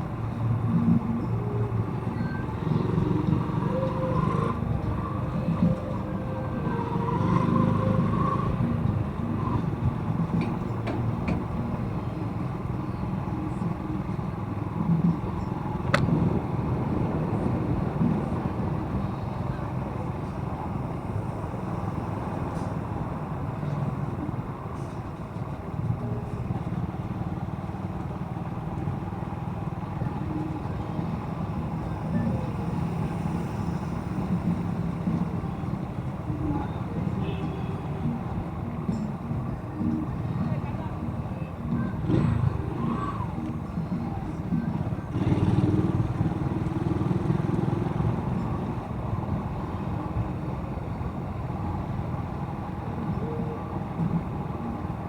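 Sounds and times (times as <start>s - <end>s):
road and wind noise: 0.0s - 55.0s
motorcycle engine running: 43.7s - 50.0s.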